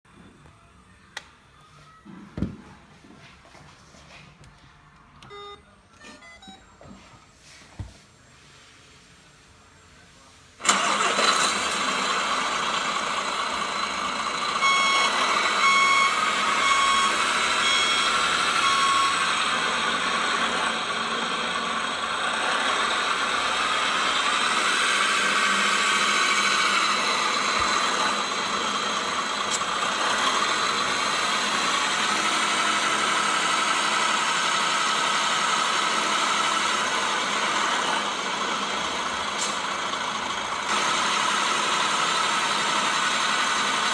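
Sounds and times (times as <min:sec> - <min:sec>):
reversing beeps: 0:05.2 - 0:07.0, 0:14.6 - 0:19.4
simulated diesel engine sound: 0:09.2 - 0:43.9.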